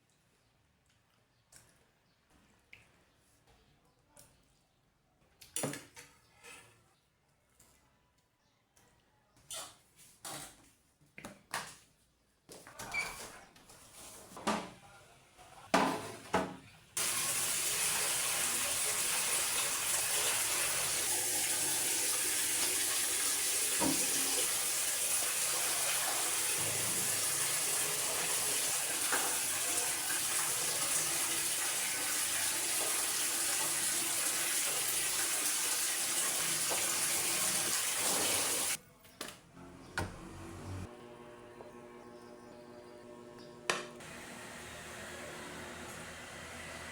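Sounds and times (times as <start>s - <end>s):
tap water running into sink: 17.0s - 38.8s.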